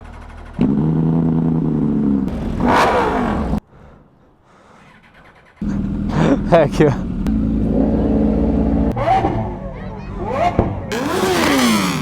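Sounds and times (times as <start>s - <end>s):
vehicle engine running: 5.6s - 9.9s, 10.9s - 12.0s.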